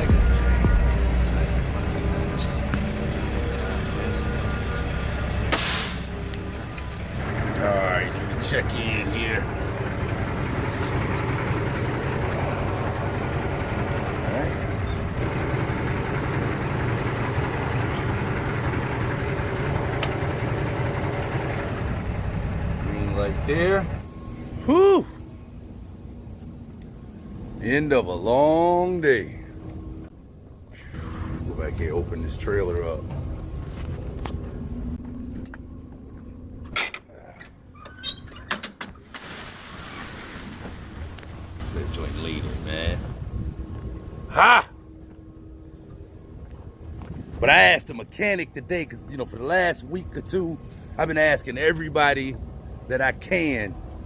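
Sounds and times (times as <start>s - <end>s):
trailer clicks and rattles: 0.0s - 24.1s, 31.7s - 39.5s
truck engine idling: 0.0s - 54.0s
sharp metal clunk: 5.5s - 6.2s.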